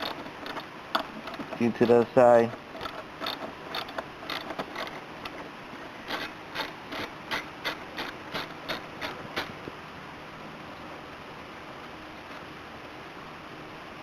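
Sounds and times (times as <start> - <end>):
ratchet wrench clicking: 0.0 - 5.4, 6.1 - 9.5.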